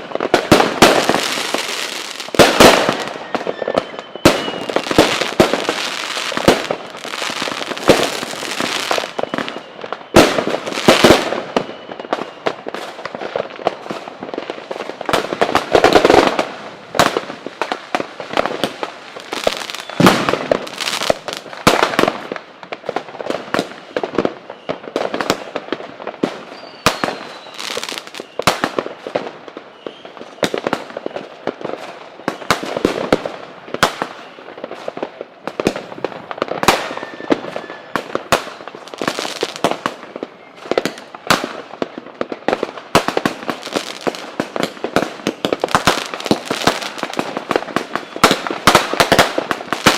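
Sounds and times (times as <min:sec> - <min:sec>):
fireworks bangs and crackles: 0:00.0 - 0:49.9
rockets whistling: 0:00.5 - 0:12.7, 0:19.2 - 0:21.4, 0:26.4 - 0:28.5, 0:36.6 - 0:38.1.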